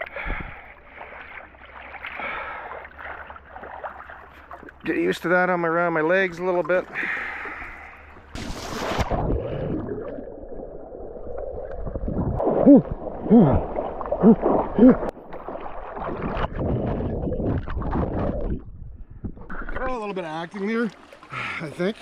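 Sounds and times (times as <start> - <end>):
water sloshing and splashing: 0.0 - 22.0
person groaning: 12.6 - 15.1.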